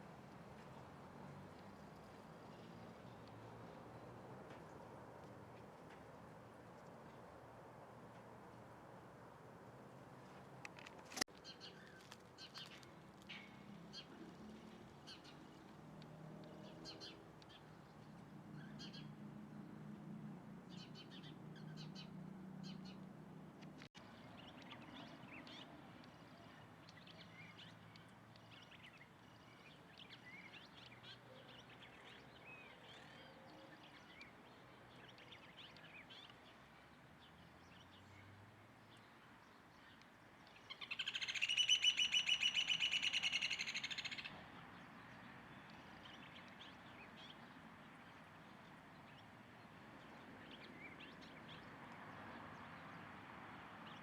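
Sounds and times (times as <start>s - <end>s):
wild birds chirping: 23.7s - 54.0s.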